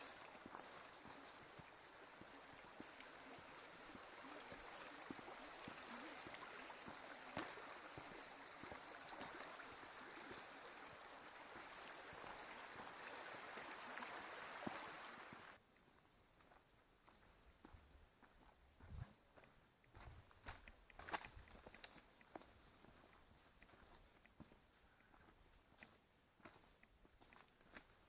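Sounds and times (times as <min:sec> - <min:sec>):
flowing water rushing: 0:00.0 - 0:15.6
soft footsteps: 0:00.0 - 0:28.0.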